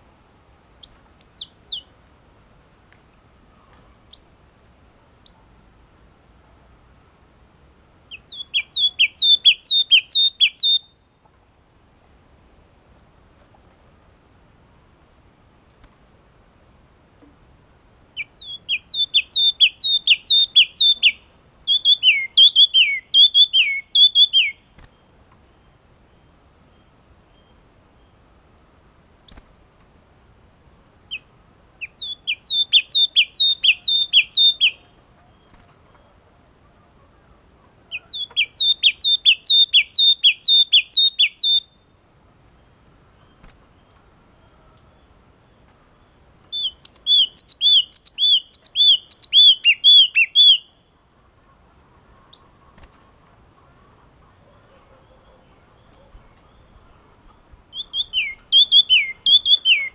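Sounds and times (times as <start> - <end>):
bird singing repeated notes: 0.8 - 2.0, 8.1 - 11.1, 18.2 - 28.3, 31.1 - 36.7, 37.7 - 51.6, 54.5 - 59.9.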